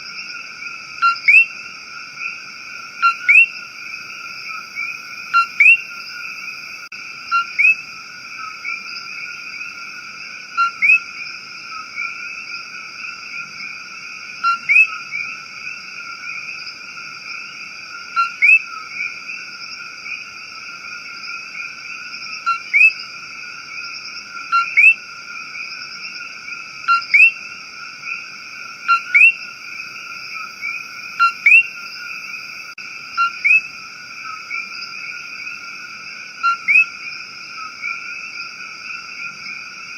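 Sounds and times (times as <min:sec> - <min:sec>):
chorus of calling frogs: 0:00.0 - 0:39.9
short sharp frog call: 0:01.0 - 0:01.6, 0:03.0 - 0:03.6, 0:04.8 - 0:06.0, 0:07.3 - 0:07.9, 0:10.6 - 0:11.1, 0:14.4 - 0:15.0, 0:18.1 - 0:18.8, 0:22.4 - 0:23.0, 0:24.5 - 0:25.1, 0:26.9 - 0:27.4, 0:28.8 - 0:29.5, 0:30.6 - 0:32.1, 0:33.2 - 0:34.6, 0:36.4 - 0:37.0.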